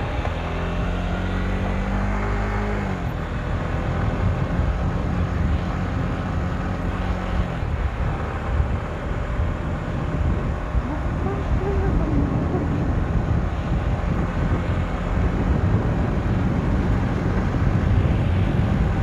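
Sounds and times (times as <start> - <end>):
motorcycle engine running: 0.0 - 19.0
wind rush on microphone: 2.8 - 19.0.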